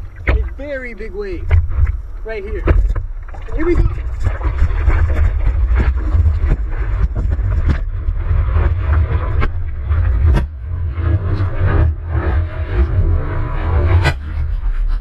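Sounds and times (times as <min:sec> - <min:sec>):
short water splashes: 0:00.0 - 0:05.9
rushing surf: 0:00.0 - 0:14.2
wind rumble: 0:00.0 - 0:15.0.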